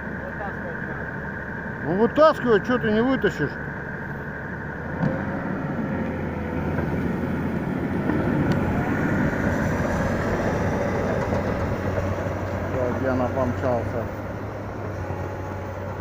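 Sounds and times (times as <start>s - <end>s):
vehicle engine labouring under load: 0.0s - 16.0s.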